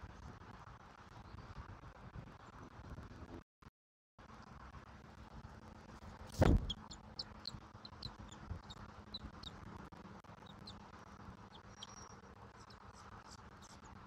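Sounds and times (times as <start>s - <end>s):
high-pitched bird chirps: 6.6s - 9.6s, 10.4s - 10.8s, 11.5s - 13.9s.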